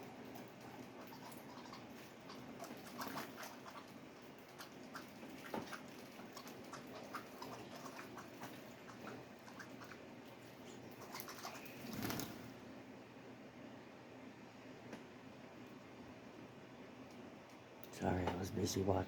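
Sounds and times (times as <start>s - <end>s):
faint bird chirp: 10.6s - 12.3s.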